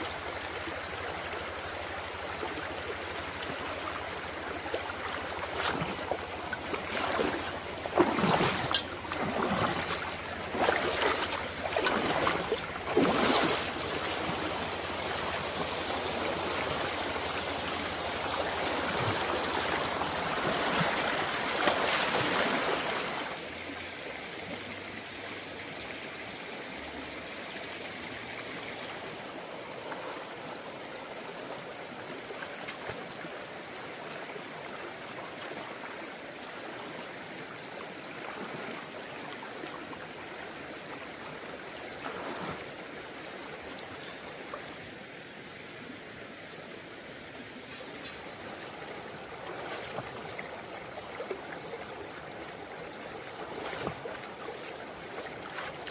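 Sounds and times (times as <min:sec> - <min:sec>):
stream water running: 0:00.0 - 0:55.9
loud water splashes: 0:05.2 - 0:14.6.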